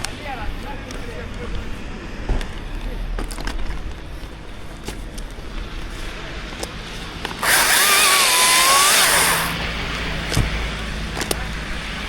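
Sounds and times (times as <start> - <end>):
chainsaw at full throttle: 7.4 - 9.7.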